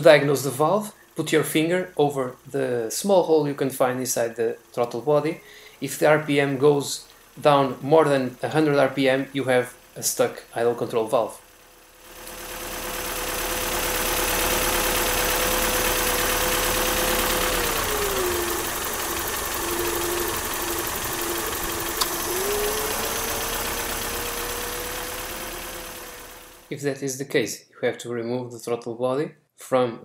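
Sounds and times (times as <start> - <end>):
car engine idling: 0.0 - 26.7
air hissing into throttle body: 12.3 - 26.4.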